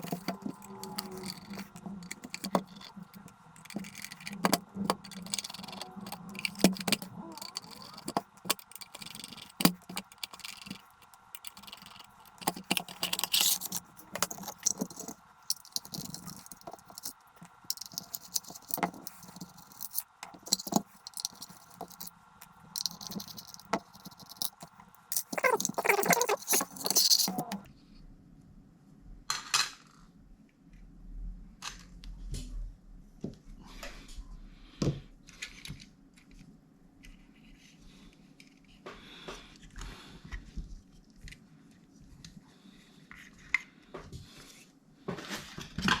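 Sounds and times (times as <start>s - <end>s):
metal scraping: 0.0s - 27.7s.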